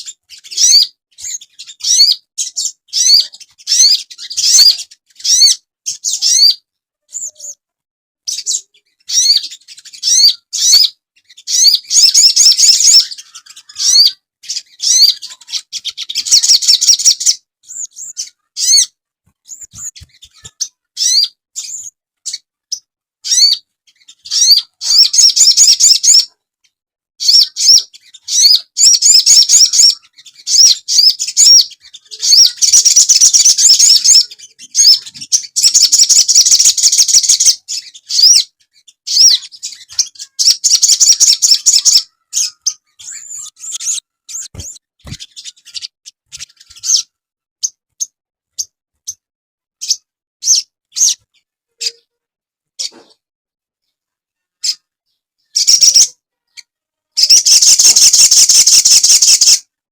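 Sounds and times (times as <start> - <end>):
birdsong quick upward chirps: 57.2 - 59.6.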